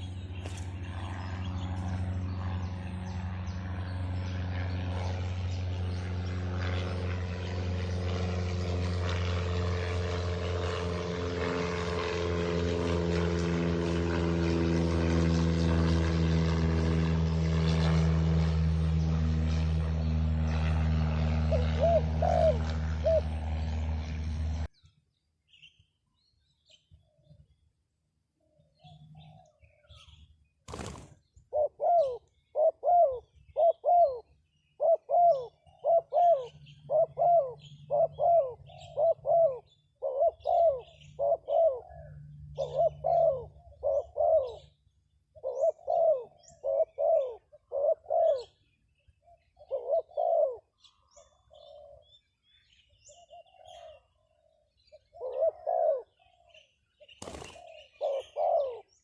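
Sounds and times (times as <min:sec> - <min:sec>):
bird calling low arched notes: 0:17.3 - 0:24.9, 0:31.4 - 0:59.0.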